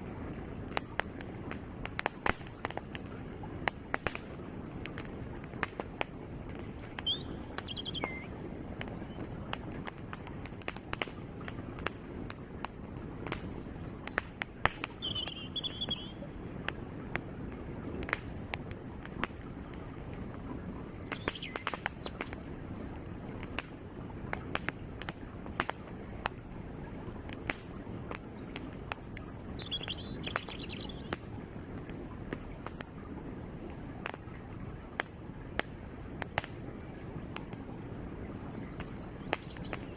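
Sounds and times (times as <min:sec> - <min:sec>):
campfire crackling and popping: 0:00.0 - 0:39.9
creek flowing: 0:00.0 - 0:39.9
bird chirping: 0:06.3 - 0:09.3, 0:14.6 - 0:16.3, 0:20.8 - 0:22.5, 0:28.4 - 0:31.2, 0:38.2 - 0:39.9.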